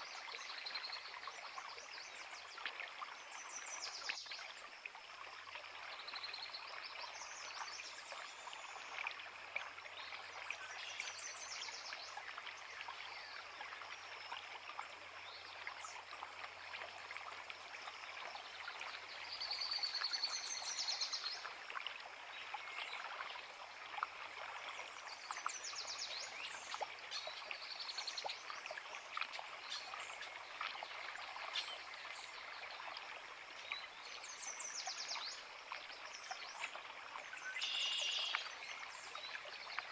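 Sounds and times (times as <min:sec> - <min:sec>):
creek babbling over rocks: 0:00.0 - 0:39.9
songbirds singing: 0:09.6 - 0:21.6, 0:33.6 - 0:39.9.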